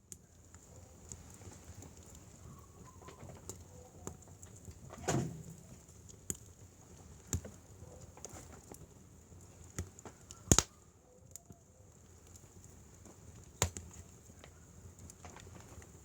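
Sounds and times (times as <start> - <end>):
wood fire crackling: 0.0 - 16.0
logs popping: 9.7 - 10.7, 13.0 - 16.0.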